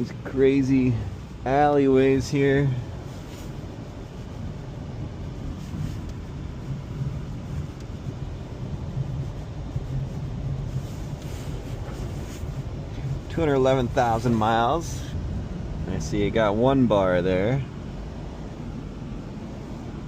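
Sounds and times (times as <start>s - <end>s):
car cabin engine and road noise: 0.0s - 20.0s.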